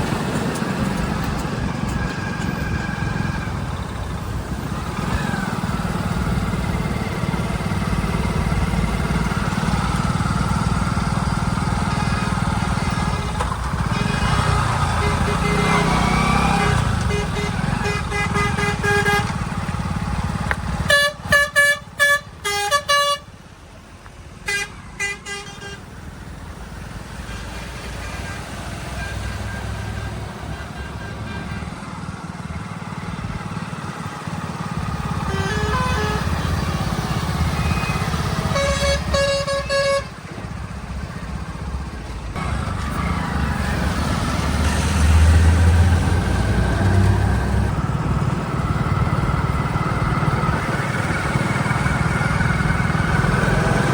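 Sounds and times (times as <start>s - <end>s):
heavy vehicle engines running: 0.0s - 53.9s
vehicle horns honking: 11.7s - 19.9s, 20.7s - 23.4s, 24.4s - 26.0s, 27.2s - 32.1s, 34.8s - 40.5s.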